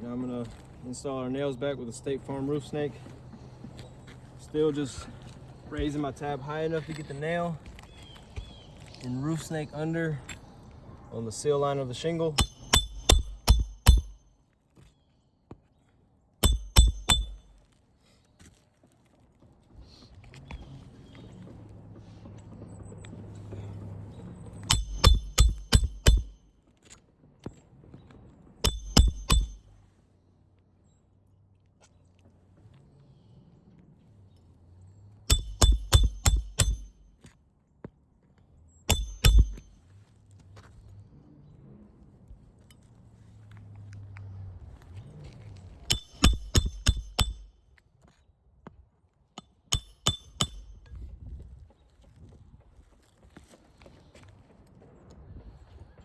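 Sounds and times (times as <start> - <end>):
hammer striking metal: 12.3 - 14.3, 16.4 - 17.6, 24.7 - 26.4, 28.6 - 29.7, 35.3 - 37.1, 38.9 - 39.8, 45.9 - 47.5, 49.4 - 50.9.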